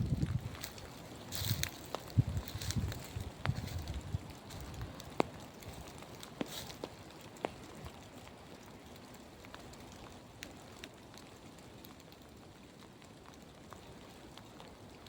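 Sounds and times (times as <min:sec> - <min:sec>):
soft steady hiss: 0:00.0 - 0:15.0.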